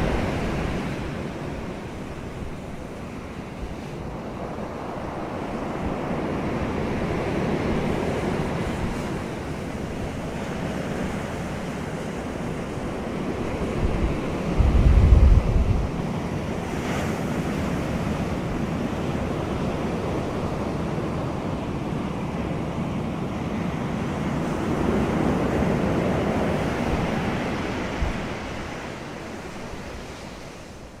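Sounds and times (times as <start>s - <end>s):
wind gust buffeting microphone: 12.8s - 16.6s
wind rushing: 13.9s - 16.0s.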